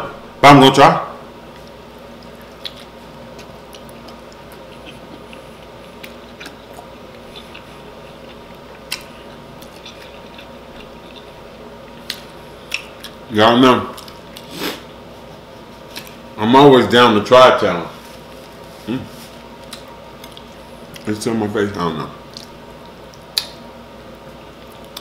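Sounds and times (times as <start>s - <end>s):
low steady hum: 0.0s - 25.0s
faint chewing: 1.5s - 13.2s, 18.2s - 21.1s, 22.3s - 23.6s.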